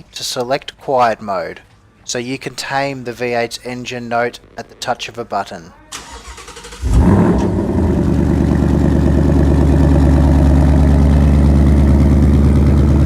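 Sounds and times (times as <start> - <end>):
car engine idling: 6.0 - 13.0.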